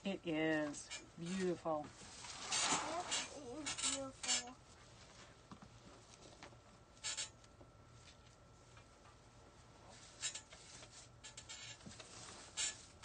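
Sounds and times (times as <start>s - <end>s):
low steady hum: 0.0s - 13.0s
artificial foliage rustling: 0.8s - 5.4s.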